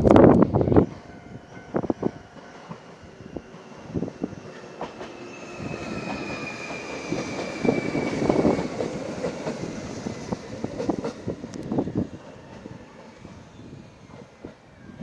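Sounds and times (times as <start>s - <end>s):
train rumble: 0.0s - 15.0s
wheels clacking over rail joints: 4.4s - 11.7s.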